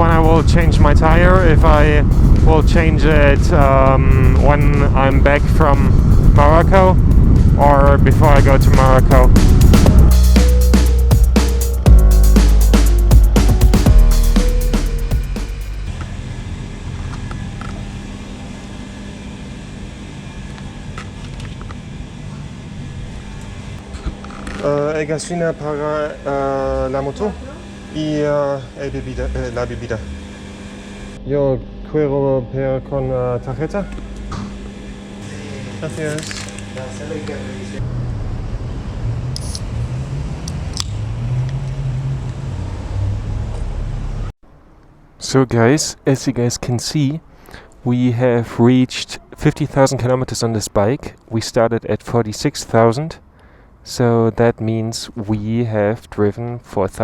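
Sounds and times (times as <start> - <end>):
wind noise: 0.0 - 10.1
motorcycle engine running: 0.1 - 14.2.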